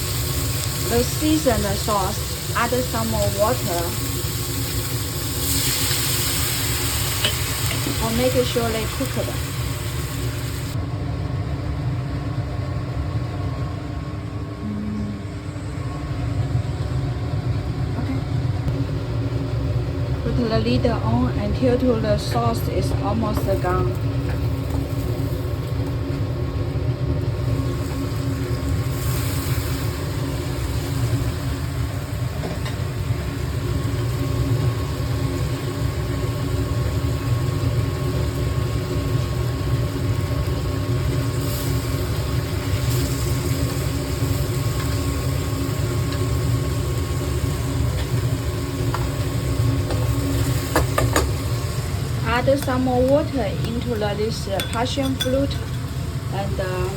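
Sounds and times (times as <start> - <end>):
motor hum with pitched tones: 14.5 - 28.9.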